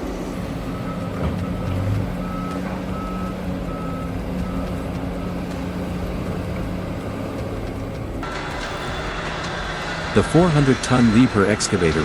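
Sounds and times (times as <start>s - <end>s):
reversing alarm beeping: 0.0s - 7.2s
diesel engine running: 0.0s - 12.0s.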